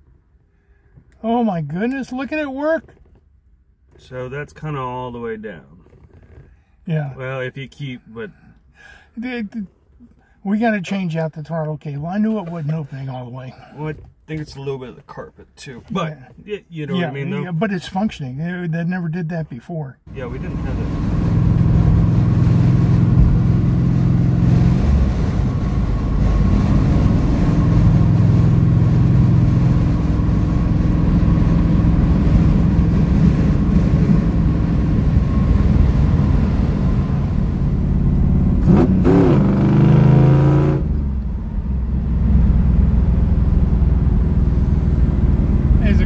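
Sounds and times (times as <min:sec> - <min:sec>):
road noise: 0:20.0 - 0:46.0
car engine running at speed: 0:20.2 - 0:46.0.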